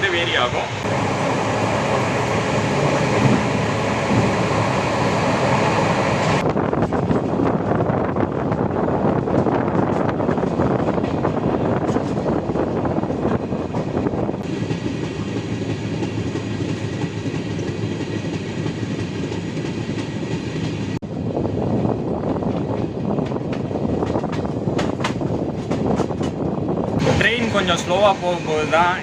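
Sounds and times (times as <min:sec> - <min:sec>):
train rail and wheel noise: 0:00.0 - 0:29.0
wheels clickety-clack over rail joints: 0:02.8 - 0:04.3, 0:06.4 - 0:21.0, 0:22.1 - 0:27.9.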